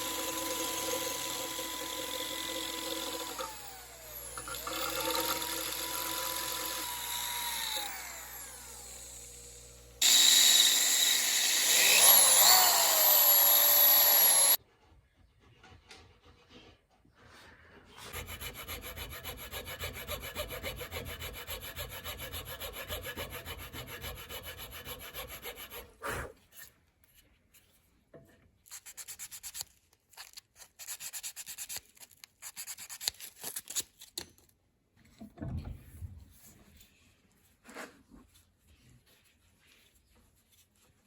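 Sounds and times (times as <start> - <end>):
power tool grinding: 0.0 - 14.6.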